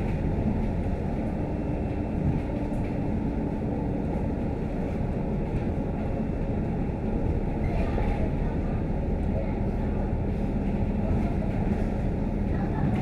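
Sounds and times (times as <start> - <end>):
bus diesel engine rumble: 0.0 - 13.0.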